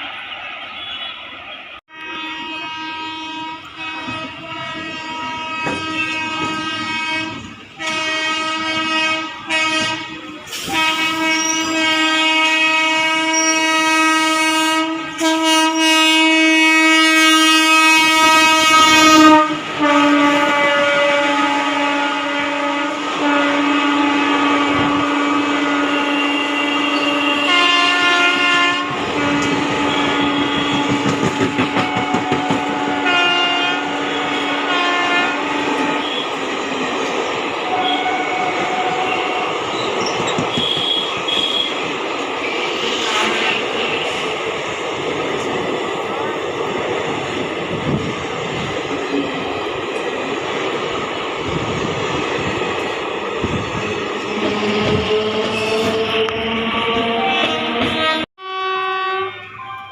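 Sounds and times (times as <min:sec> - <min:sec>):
train horn blasts: 0:01.9 - 0:36.5, 0:37.7 - 0:39.6, 0:40.5 - 0:41.9, 0:54.2 - 0:59.9
train wheels clattering on rails: 0:03.6 - 0:08.9, 0:28.9 - 0:58.0.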